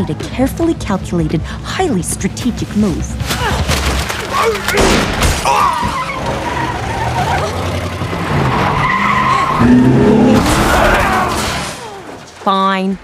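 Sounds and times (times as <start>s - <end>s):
car tyres squealing: 5.4s - 12.4s
car engine running: 6.1s - 11.1s.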